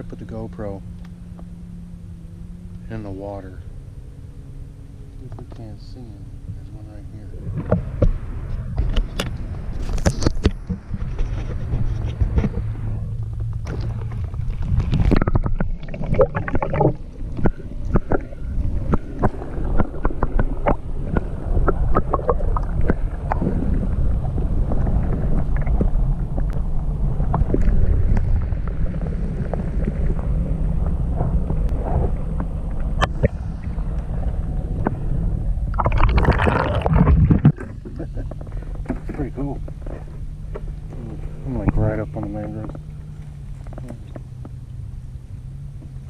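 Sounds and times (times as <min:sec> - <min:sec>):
underwater low rumble: 0:00.0 - 0:46.0.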